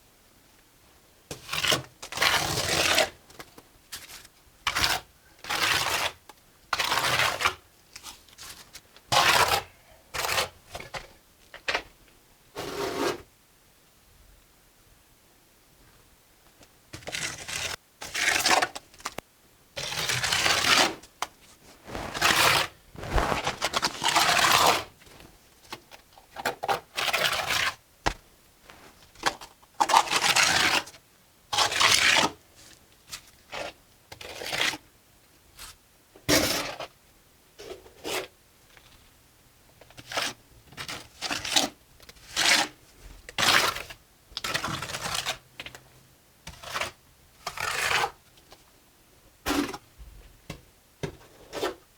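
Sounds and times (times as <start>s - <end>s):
trowel scraping mortar on brick: 21.6s - 25.3s, 46.5s - 48.2s.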